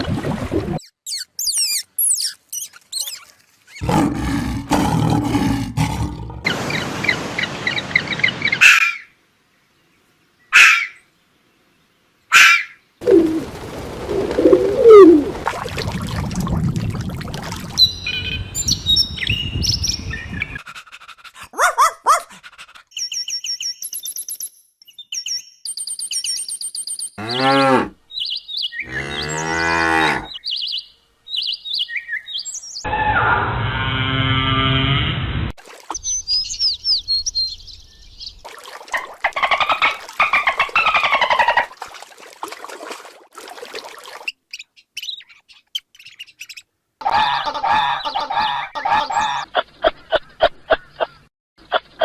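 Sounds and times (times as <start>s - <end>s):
high bird chirps: 0.8s - 3.8s, 17.8s - 20.6s
cow mooing: 27.2s - 28.0s, 28.9s - 30.3s.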